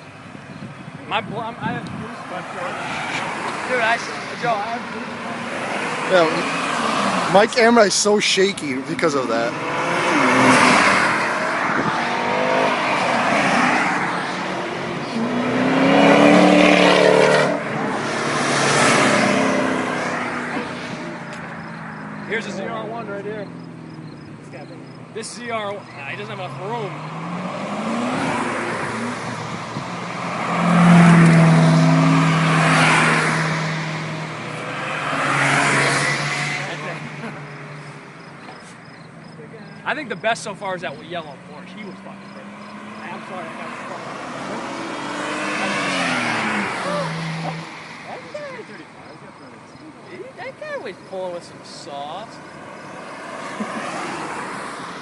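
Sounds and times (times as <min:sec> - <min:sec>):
sports car accelerating past: 0:02.2 - 0:51.6, 0:52.2 - 0:55.0.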